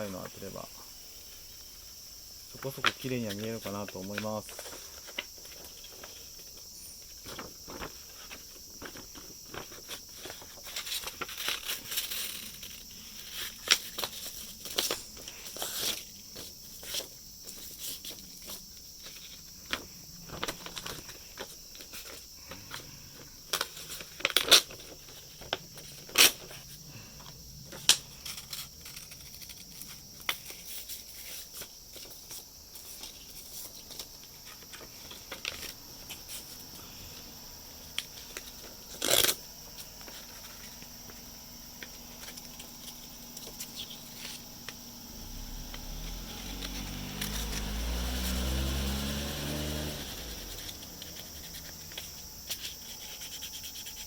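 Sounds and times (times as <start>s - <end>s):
high insect chirring: 0.0s - 54.0s
sandpaper rubbing on plastic: 48.9s - 54.0s.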